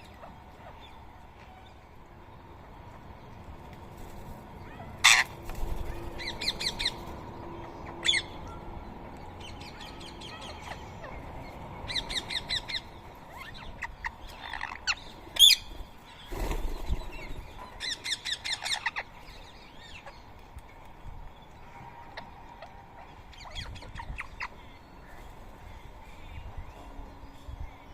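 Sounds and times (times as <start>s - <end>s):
parakeets squawking: 4.7s - 8.4s, 9.8s - 15.8s, 17.8s - 19.1s.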